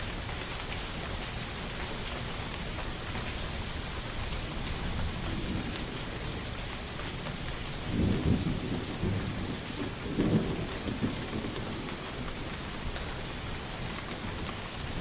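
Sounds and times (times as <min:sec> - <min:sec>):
steady rain hissing: 0:00.0 - 0:15.0
low thunder rumbles: 0:04.7 - 0:13.0.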